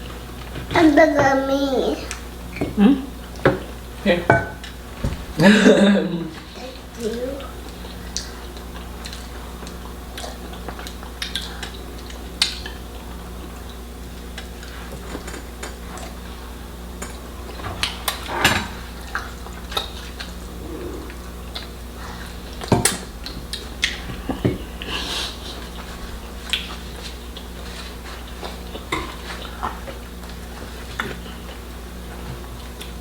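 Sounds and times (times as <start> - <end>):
steady low hum: 0.0 - 33.0
plates and cutlery clinking: 3.4 - 6.0.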